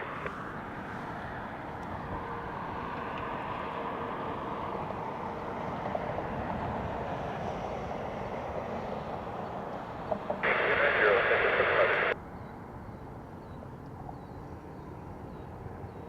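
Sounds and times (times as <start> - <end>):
jet airliner engine rumble: 0.0 - 12.2.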